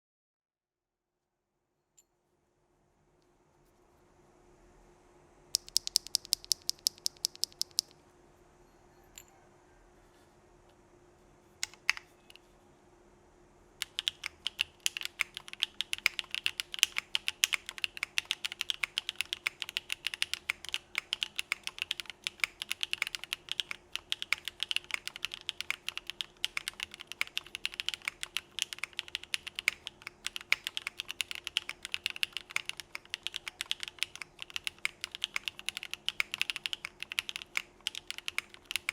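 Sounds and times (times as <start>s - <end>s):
mechanical keyboard typing: 5.6s - 7.9s, 11.6s - 12.2s, 13.8s - 38.9s.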